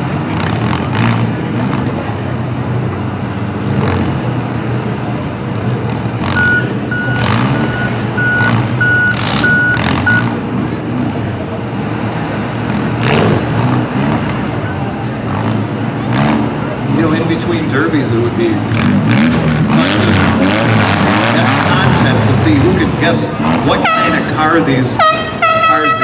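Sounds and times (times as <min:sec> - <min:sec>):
engines running: 0:00.0 - 0:26.0
vehicle reversing alarm beeping: 0:06.3 - 0:10.3.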